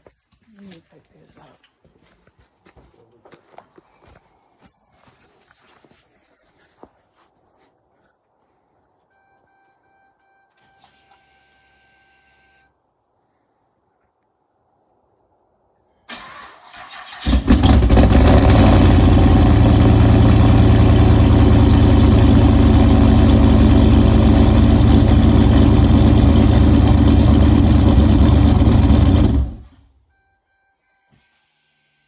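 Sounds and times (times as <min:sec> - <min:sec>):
car engine fast idle: 0:16.1 - 0:29.8.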